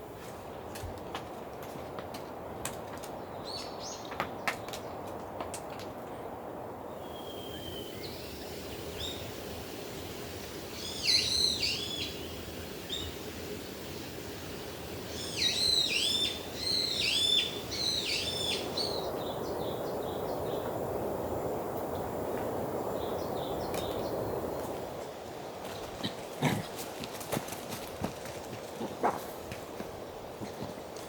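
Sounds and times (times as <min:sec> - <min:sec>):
steady background hiss: 0:00.0 - 0:31.0
songbird singing swooping notes: 0:07.0 - 0:09.4, 0:10.0 - 0:14.1, 0:14.8 - 0:24.7.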